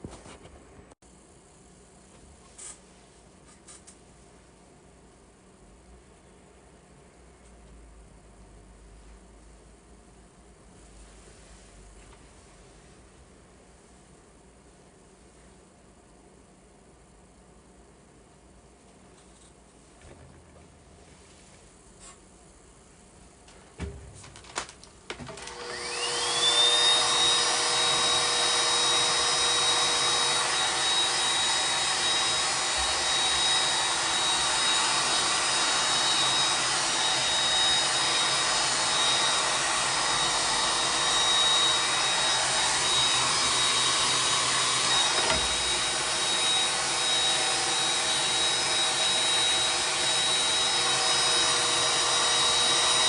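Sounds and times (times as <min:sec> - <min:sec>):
hair dryer motor whine: 0:25.2 - 0:53.0.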